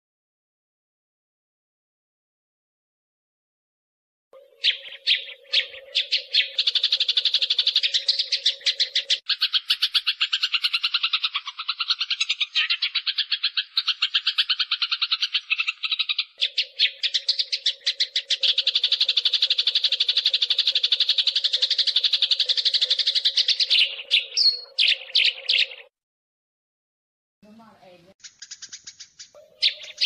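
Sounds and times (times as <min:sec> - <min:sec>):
sparrows chattering chirps: 0:04.4 - 0:25.9, 0:28.2 - 0:30.0.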